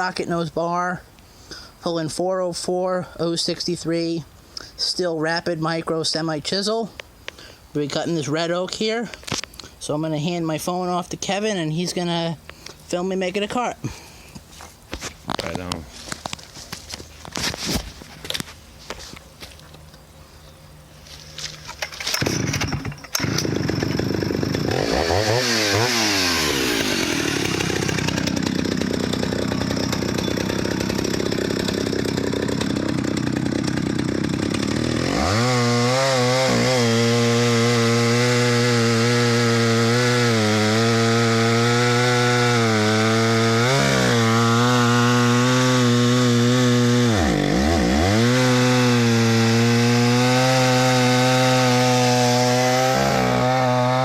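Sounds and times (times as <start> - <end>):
chainsaw cutting wood: 21.2 - 54.0.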